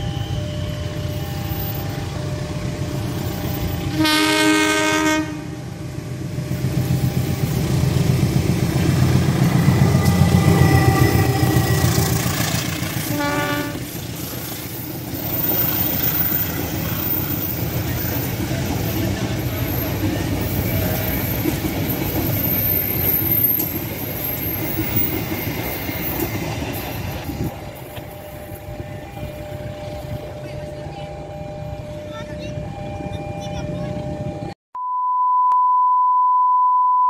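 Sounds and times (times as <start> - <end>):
locomotive engine rumble: 0.0 - 34.6
locomotive horn blast: 3.3 - 5.8, 9.8 - 14.0
train wheels clattering over rails: 13.8 - 29.9.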